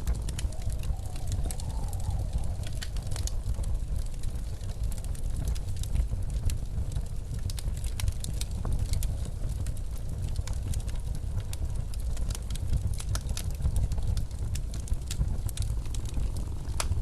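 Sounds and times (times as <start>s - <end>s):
blizzard wind rumble: 0.0s - 17.0s
wood fire crackling and popping: 0.0s - 17.0s.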